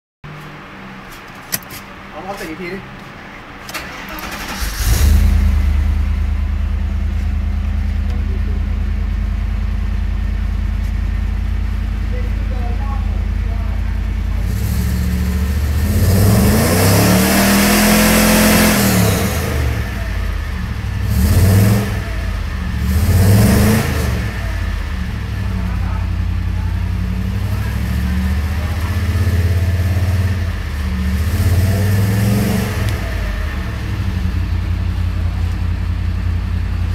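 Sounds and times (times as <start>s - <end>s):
car engine idling and revving: 0.3s - 36.9s.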